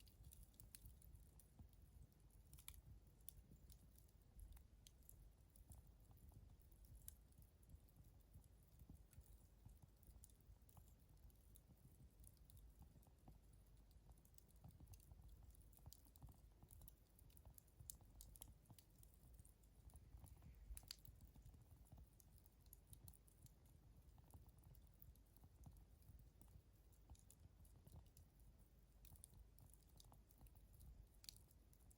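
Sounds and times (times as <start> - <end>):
campfire crackling and popping: 0.0 - 31.9.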